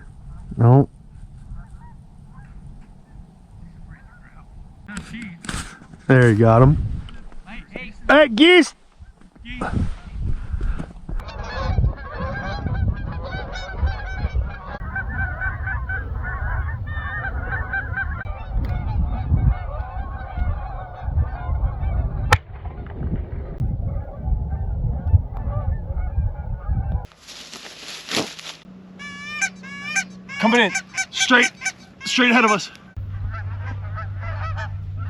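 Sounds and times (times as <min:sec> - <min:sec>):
geese honking: 0:11.2 - 0:22.8, 0:28.9 - 0:35.0
low rumble: 0:11.2 - 0:27.1, 0:33.0 - 0:35.0.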